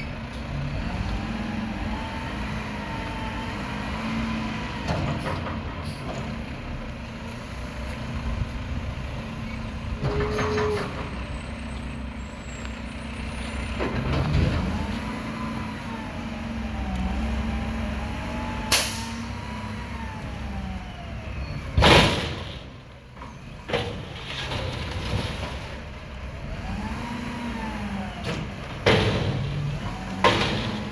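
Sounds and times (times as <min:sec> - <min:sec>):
garbage truck engine revving: 0:00.2 - 0:06.9, 0:13.2 - 0:30.9
air brake hiss: 0:18.7 - 0:19.3.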